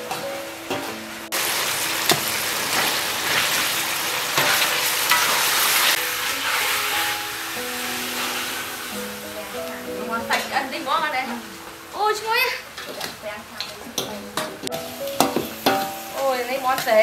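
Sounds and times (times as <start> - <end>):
meat sizzling in hot oil: 0.6 - 14.1, 14.7 - 17.0
metal spatula knocking wok: 14.0 - 16.9.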